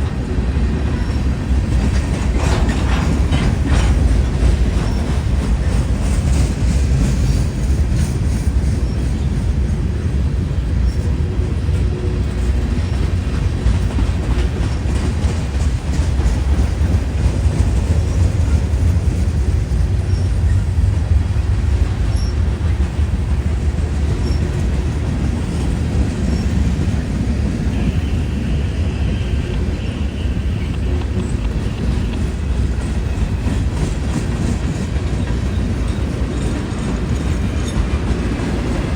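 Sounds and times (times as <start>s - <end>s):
freight train rumbling: 0.0s - 38.9s
wheels clacking over rail joints: 0.0s - 38.9s
high wheel squeal: 22.1s - 22.6s.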